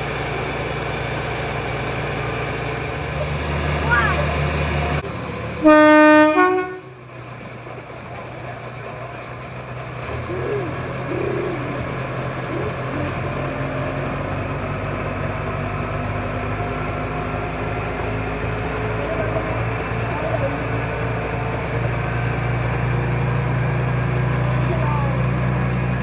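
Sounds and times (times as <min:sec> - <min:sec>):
train engine and wheels: 0:00.0 - 0:26.0
locomotive whistle blast: 0:05.6 - 0:06.9.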